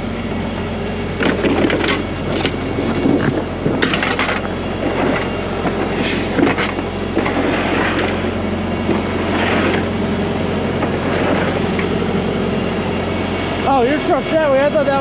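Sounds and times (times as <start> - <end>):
truck diesel engine running: 0.0 - 15.0
clanks and rattles: 1.2 - 10.0.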